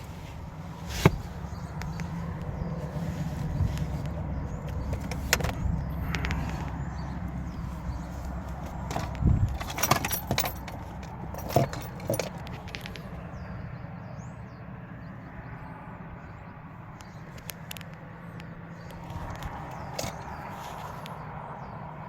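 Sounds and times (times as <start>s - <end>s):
sharp clicks and knocks: 3.5s - 7.3s, 8.2s - 13.1s.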